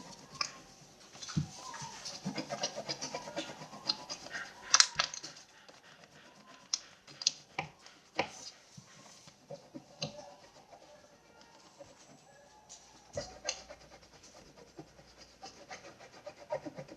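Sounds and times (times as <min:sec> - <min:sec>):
crayon scratching on paper: 0:00.0 - 0:12.4, 0:13.0 - 0:16.9.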